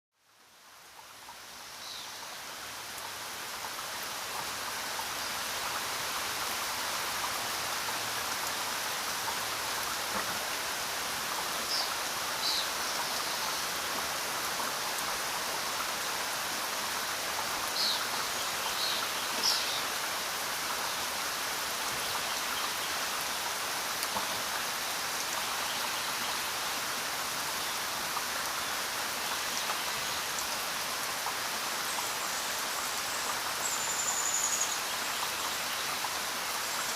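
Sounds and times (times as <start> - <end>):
steady rainfall: 0.1 - 36.9.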